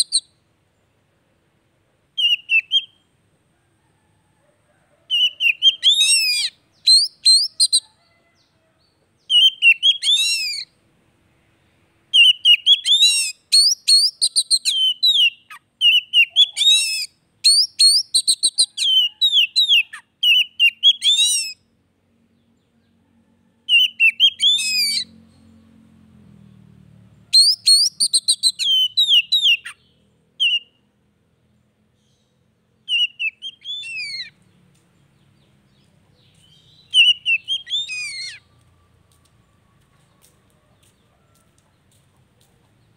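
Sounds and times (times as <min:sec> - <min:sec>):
bird singing whistles and chirps: 0:00.0 - 0:00.4, 0:02.2 - 0:03.0, 0:05.1 - 0:07.9, 0:09.2 - 0:10.7, 0:12.1 - 0:21.6, 0:23.7 - 0:25.2, 0:27.3 - 0:30.9, 0:32.8 - 0:34.4, 0:35.7 - 0:38.5.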